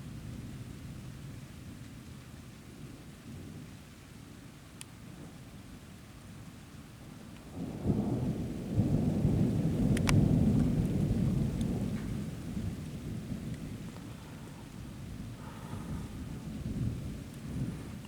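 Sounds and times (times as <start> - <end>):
steady rain: 0.0 - 18.0
rolling thunder: 7.5 - 18.0.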